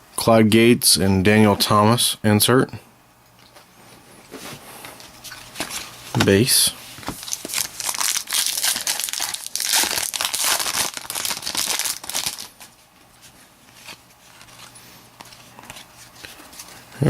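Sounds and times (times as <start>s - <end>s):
wrapper crinkling and tearing: 7.2s - 12.7s.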